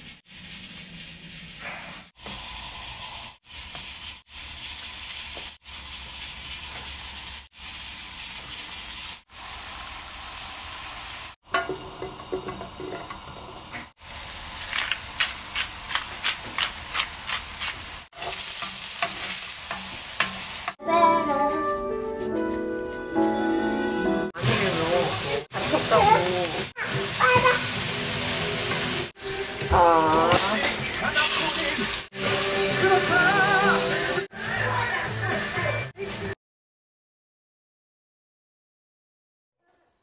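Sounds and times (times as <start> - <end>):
pancakes sizzling in oil: 0.2 - 20.8
quick oil crackles: 14.0 - 20.7.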